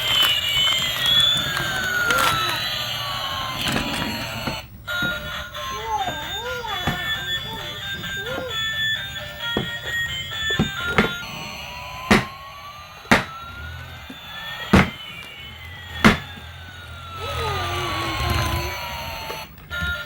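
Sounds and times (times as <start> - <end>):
toy airplane jet whine: 0.0 - 20.0
sharp knocks: 12.1 - 12.4, 13.1 - 13.4, 14.8 - 15.0, 16.0 - 16.3.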